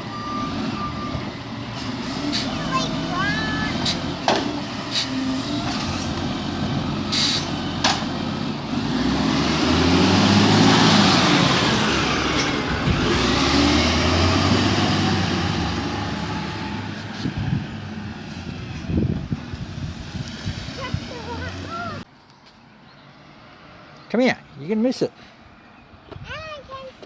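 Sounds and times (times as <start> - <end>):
garbage truck diesel engine revving: 0.0 - 18.7
short air hisses: 4.9 - 5.2, 7.1 - 7.6.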